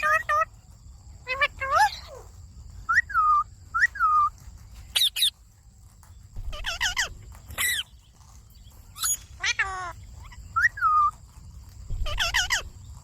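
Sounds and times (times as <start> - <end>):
parakeets whistled calls: 1.2 - 5.4, 6.4 - 8.3, 8.9 - 11.2, 11.9 - 13.0.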